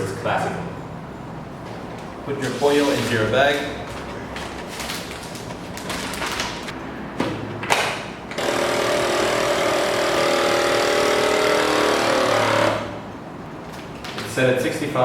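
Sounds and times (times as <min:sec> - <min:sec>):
vacuum sealer pump motor: 0:08.3 - 0:13.0.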